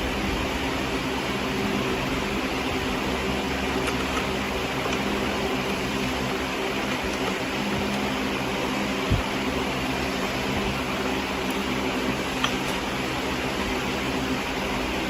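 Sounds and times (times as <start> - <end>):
machine hum and whirring: 0.0 - 15.0.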